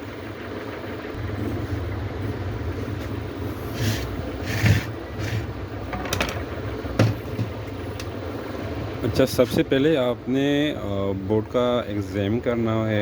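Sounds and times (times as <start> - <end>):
steady low hum: 0.0 - 13.0
handling scrapes: 3.6 - 5.5.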